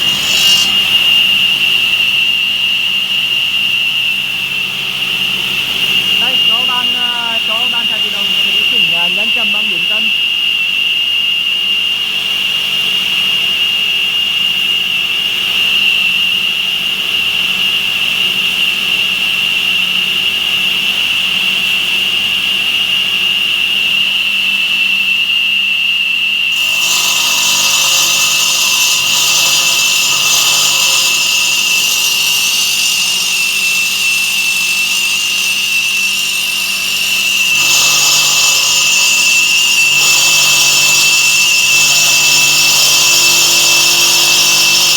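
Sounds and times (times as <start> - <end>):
hiss of stone cutting: 0.0 - 1.3, 6.1 - 10.3, 26.5 - 44.9
stone saw blade whining: 0.0 - 11.8, 26.4 - 44.9.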